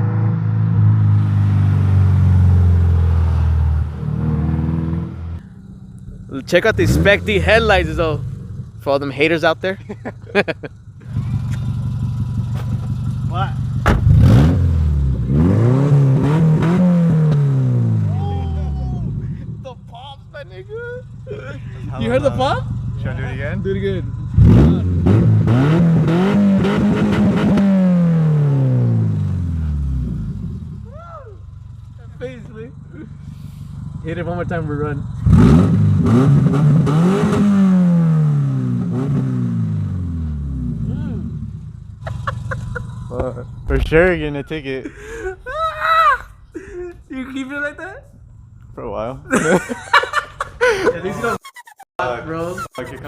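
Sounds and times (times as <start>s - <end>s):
loud car engine revving: 0.0s - 19.7s, 20.6s - 30.9s, 31.6s - 45.3s
exhaust pops: 10.9s - 15.4s, 40.6s - 45.4s.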